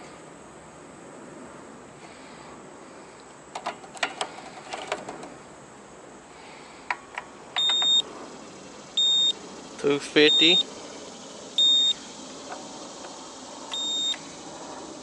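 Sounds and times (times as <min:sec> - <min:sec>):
multimeter high-pitched beep: 0:07.6 - 0:08.0, 0:09.0 - 0:09.4, 0:10.2 - 0:10.7, 0:11.6 - 0:12.0, 0:13.7 - 0:14.2.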